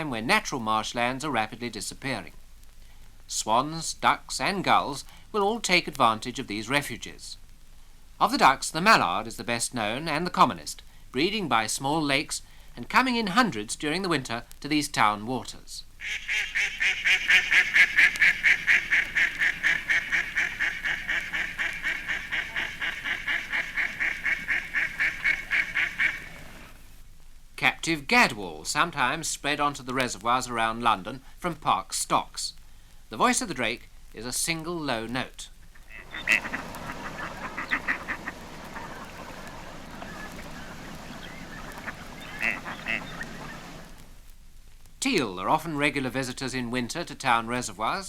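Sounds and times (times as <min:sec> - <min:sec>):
steady background hiss: 0:00.0 - 0:48.0
duck quacking rapidly: 0:16.0 - 0:26.8, 0:35.8 - 0:43.7.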